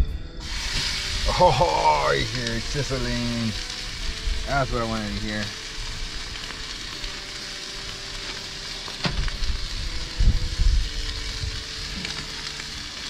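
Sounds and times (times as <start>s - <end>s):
steak sizzling in a skillet: 0.4s - 13.0s
low rumble: 8.6s - 13.0s.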